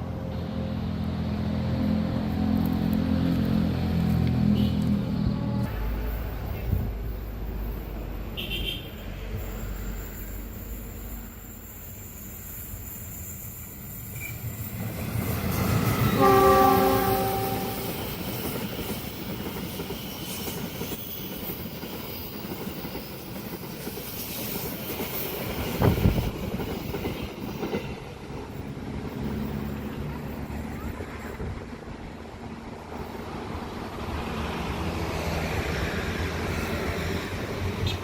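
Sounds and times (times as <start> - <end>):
train rumble and wheel clatter: 0.0 - 38.0
train horn: 16.0 - 18.1.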